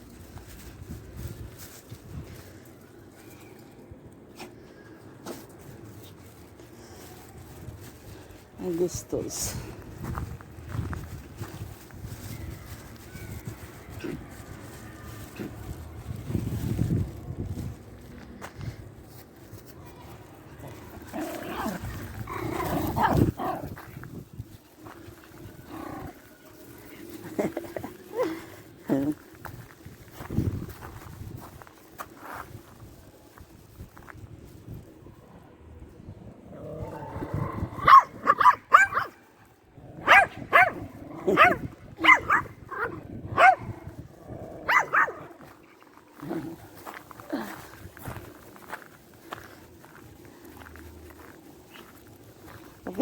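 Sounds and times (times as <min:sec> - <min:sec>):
dog barking and yelping: 0:37.8 - 0:39.1, 0:40.0 - 0:43.7, 0:44.6 - 0:45.3.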